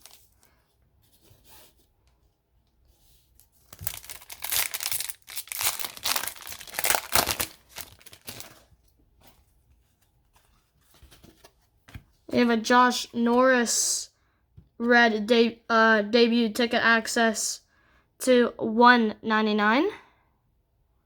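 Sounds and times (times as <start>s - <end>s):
wrapper tearing and crinkling: 0.0s - 0.4s, 3.5s - 8.7s
faint wrapper handling: 0.0s - 0.6s, 3.2s - 8.9s.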